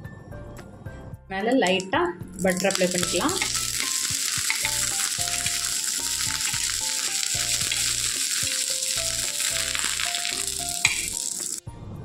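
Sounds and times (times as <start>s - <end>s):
bread frying in butter sizzling: 2.4s - 11.6s.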